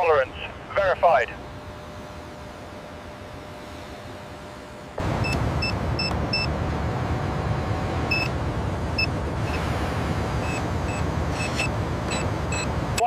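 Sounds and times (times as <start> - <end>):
high-pitched beeps: 5.0 - 6.6, 7.9 - 13.0
heavy machinery engine rumble: 5.0 - 13.0.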